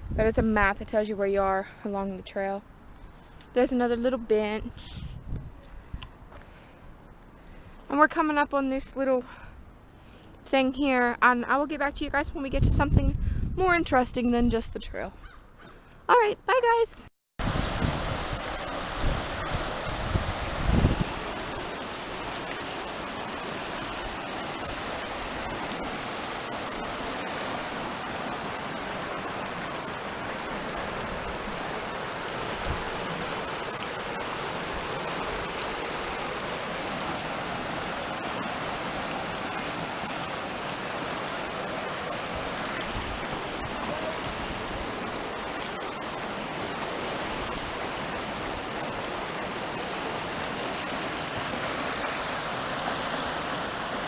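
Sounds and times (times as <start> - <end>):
stream water rushing: 17.4 - 54.0.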